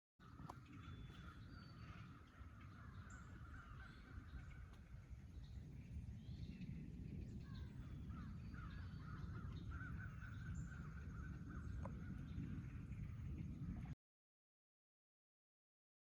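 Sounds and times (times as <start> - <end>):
distant crows cawing: 0.2 - 5.0, 8.1 - 12.2
steady low rumble: 0.2 - 14.0.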